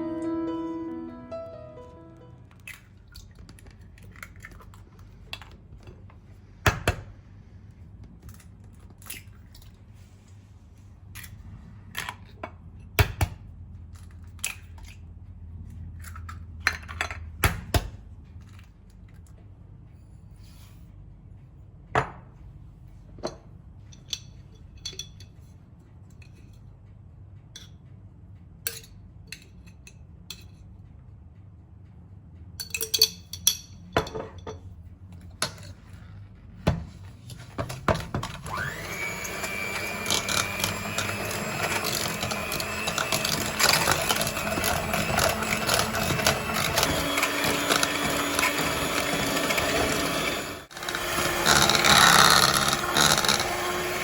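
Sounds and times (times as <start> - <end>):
kitchen appliance motor running: 37.6 - 54.0.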